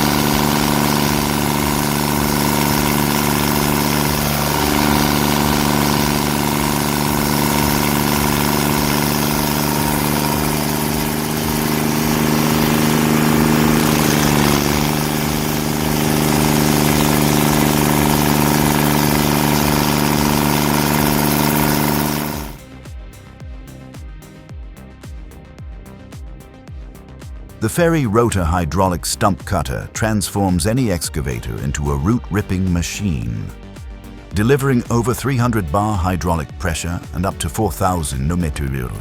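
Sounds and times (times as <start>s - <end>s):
heavy machinery engine running: 0.0s - 22.6s.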